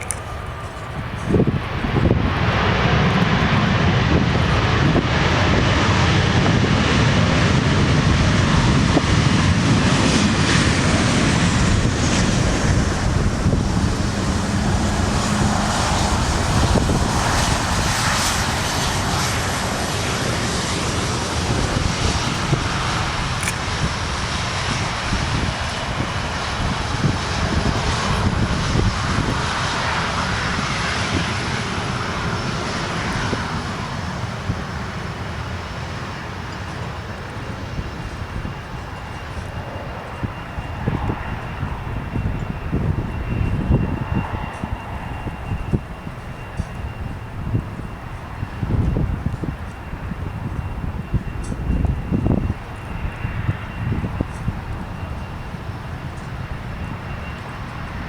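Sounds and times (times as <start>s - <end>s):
aircraft engines running: 0.0s - 58.0s.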